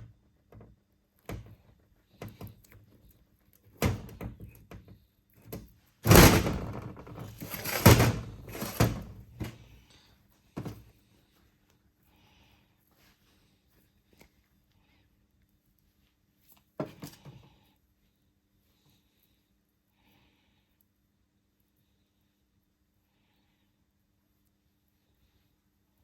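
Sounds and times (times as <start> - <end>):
metal rattling and clattering: 6.0 - 9.6.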